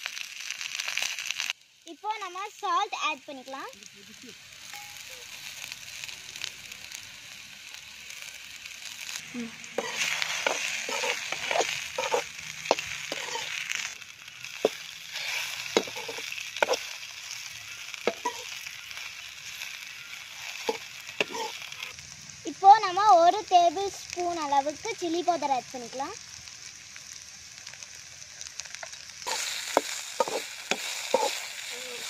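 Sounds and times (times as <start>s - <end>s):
okra sizzling in oil: 0.0s - 32.0s
metal spatula scraping a pan: 9.7s - 13.9s, 14.5s - 21.9s, 29.3s - 32.0s.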